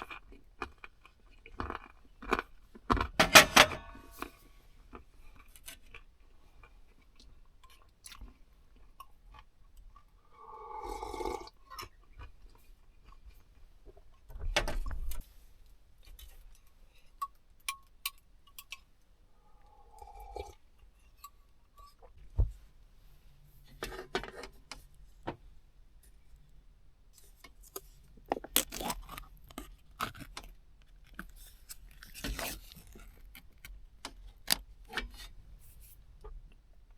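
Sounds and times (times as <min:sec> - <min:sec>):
small objects clicking and scraping: 0:27.2 - 0:35.3.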